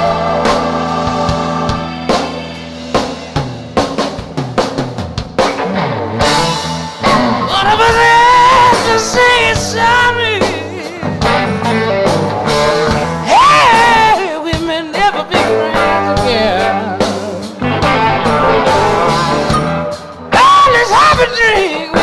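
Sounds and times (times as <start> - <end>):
falling bass line: 0.0 - 3.9, 5.6 - 14.2, 15.4 - 20.4
drum hits: 0.0 - 14.7, 17.2 - 20.5
live rock band playing: 0.0 - 22.0
lead electric guitar with vibrato: 5.2 - 22.0.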